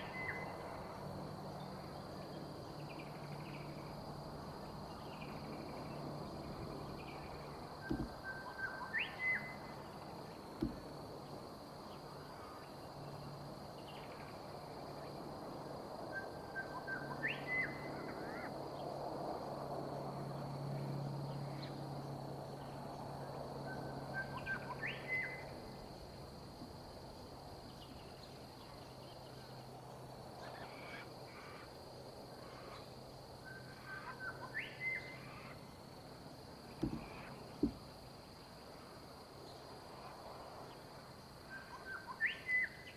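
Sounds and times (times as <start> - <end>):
high insect drone: 0.0 - 42.9
low thumps: 7.8 - 8.2, 10.6 - 10.9, 36.8 - 37.8
bird call with upward whistle: 7.9 - 9.7, 41.5 - 42.8.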